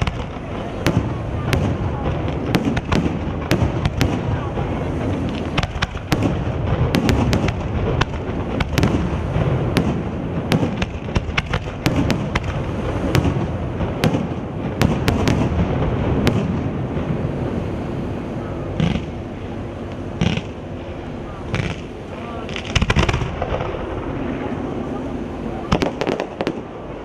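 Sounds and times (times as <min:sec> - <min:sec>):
firework bangs and crackles: 0:00.0 - 0:27.0
low rumble: 0:00.0 - 0:27.0.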